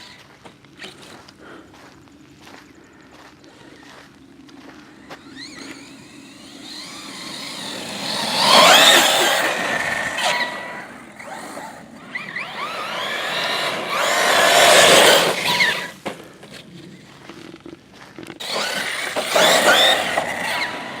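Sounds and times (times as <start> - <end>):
electric motor whining: 3.5 - 17.4, 18.3 - 21.0.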